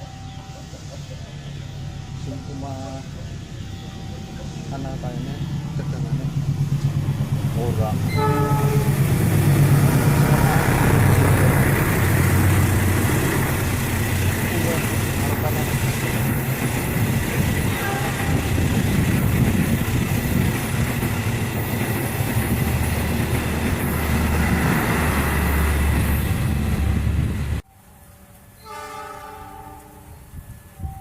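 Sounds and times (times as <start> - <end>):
diesel locomotive engine rumble: 0.0 - 31.0
wheels clattering on rail: 3.2 - 27.3
horn-like tone: 8.1 - 9.1, 17.7 - 18.6, 28.6 - 31.0.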